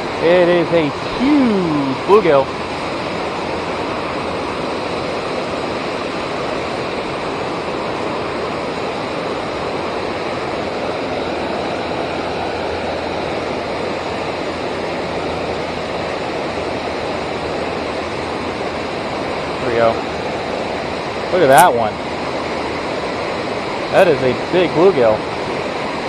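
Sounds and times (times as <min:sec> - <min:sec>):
fast-flowing river rushing: 0:00.0 - 0:26.0.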